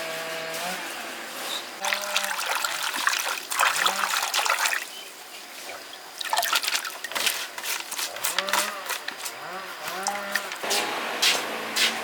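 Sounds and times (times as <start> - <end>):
water splashing and trickling: 1.8 - 5.0, 5.6 - 9.0.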